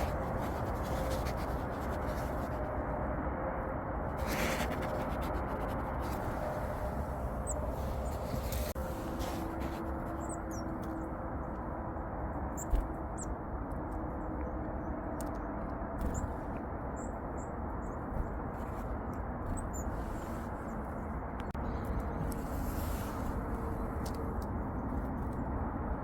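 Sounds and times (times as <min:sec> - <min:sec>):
low background rumble: 0:00.0 - 0:26.0
songbirds calling: 0:06.0 - 0:11.6, 0:12.4 - 0:13.4, 0:14.2 - 0:24.8.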